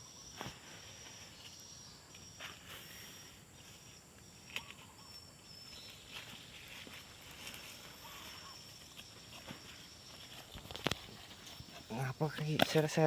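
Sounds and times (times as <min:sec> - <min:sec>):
insect chirring: 0:00.0 - 0:13.0.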